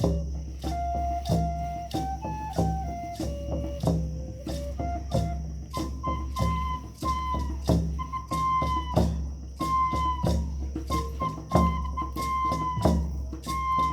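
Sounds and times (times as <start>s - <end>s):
flute playing long notes: 0.0s - 13.9s
hand drum beating: 0.0s - 13.9s.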